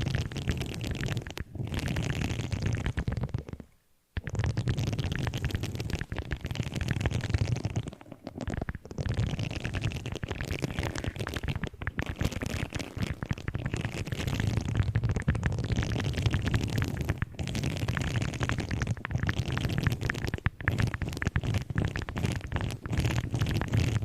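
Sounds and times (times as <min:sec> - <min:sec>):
objects crackling and clicking: 0:04.2 - 0:24.0.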